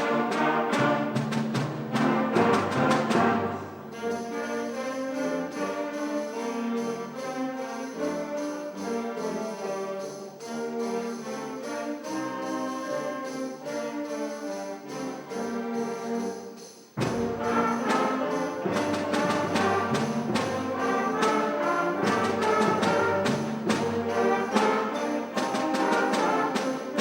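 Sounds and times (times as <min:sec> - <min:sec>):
percussion striking: 0:00.0 - 0:27.0
concert band playing: 0:17.0 - 0:27.0.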